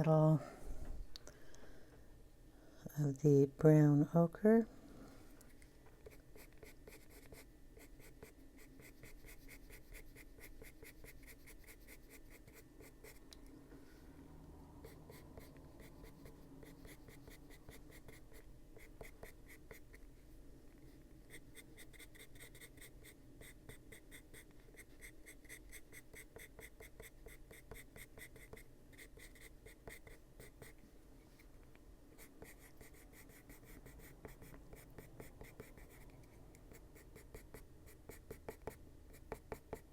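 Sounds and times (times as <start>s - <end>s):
pencil scratching on paper: 6.0s - 13.3s, 14.8s - 20.0s, 21.3s - 30.8s, 32.2s - 39.9s.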